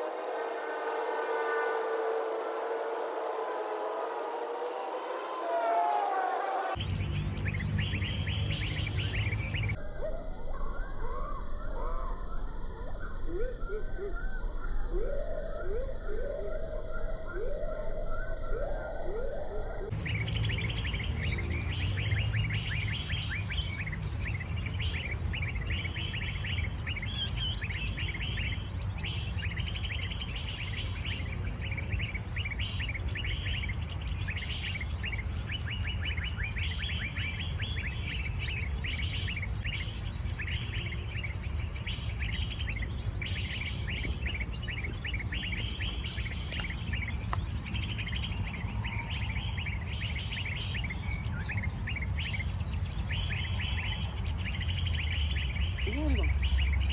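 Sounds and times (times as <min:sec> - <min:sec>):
small birds chirping: 0:00.0 - 0:09.8, 0:19.9 - 0:56.9
steady low rumble: 0:37.0 - 0:50.2.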